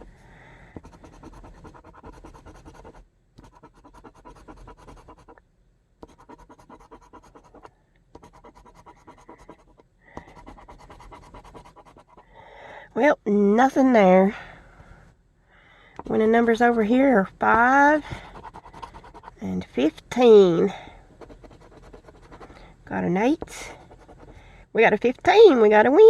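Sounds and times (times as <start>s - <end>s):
scratching lottery ticket: 0.8s - 5.4s, 6.0s - 12.3s, 16.0s - 19.4s, 21.2s - 22.6s, 23.3s - 24.4s.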